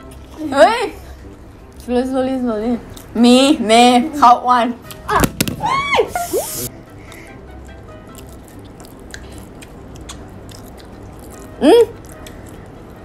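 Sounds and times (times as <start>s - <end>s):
faint background music: 0.0s - 13.0s
people chewing: 6.9s - 13.0s.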